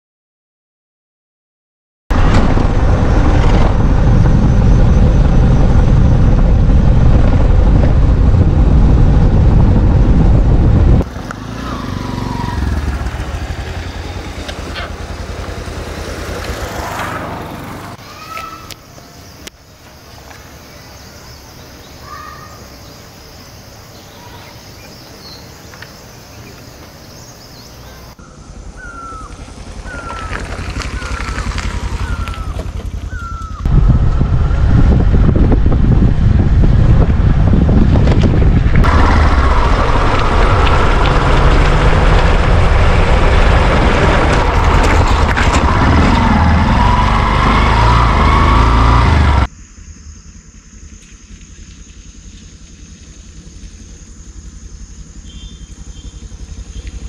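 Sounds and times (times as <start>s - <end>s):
wind noise on microphone: 2.1s - 11.1s, 33.2s - 46.7s
motorcycle riding: 2.1s - 57.0s
bird chirps: 18.2s - 33.7s, 52.8s - 57.0s.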